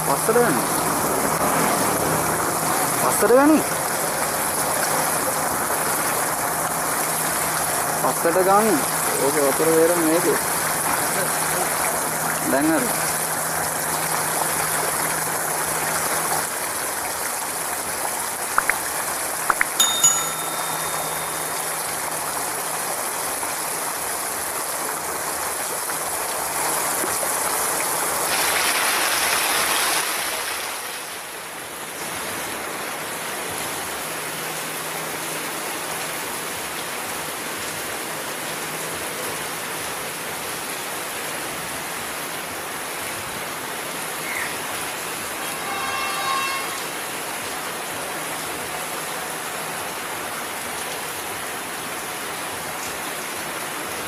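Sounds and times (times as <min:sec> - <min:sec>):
heavy rain pouring: 0:00.0 - 0:54.0
short pitched tone: 0:19.5 - 0:22.2, 0:45.6 - 0:46.8.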